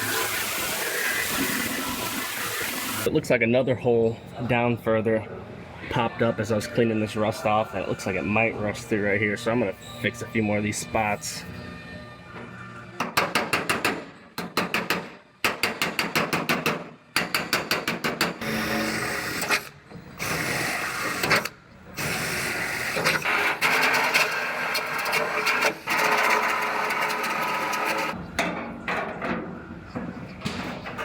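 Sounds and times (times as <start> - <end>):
power tool on sheet metal: 0.0 - 3.1, 18.4 - 28.2.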